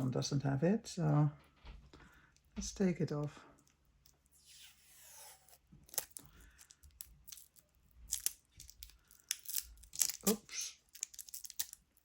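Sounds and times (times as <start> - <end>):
plastic crinkling: 3.6 - 12.0
plastic strip tearing: 4.1 - 12.0.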